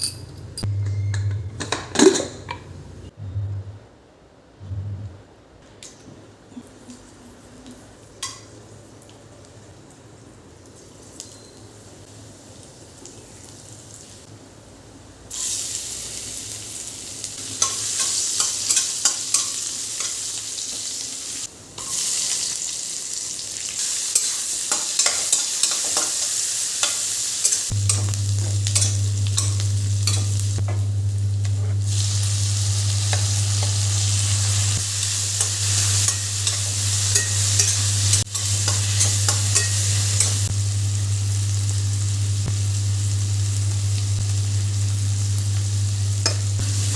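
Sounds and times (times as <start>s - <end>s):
steady low hum: 4.6s - 5.3s, 27.7s - 46.9s
food sizzling in a pan: 7.6s - 14.4s, 15.3s - 46.9s.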